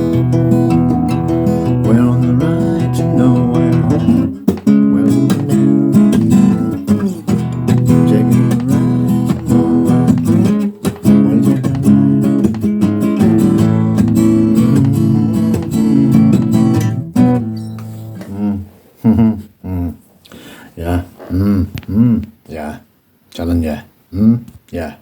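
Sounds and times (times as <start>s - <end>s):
acoustic guitar strumming: 0.0s - 18.4s.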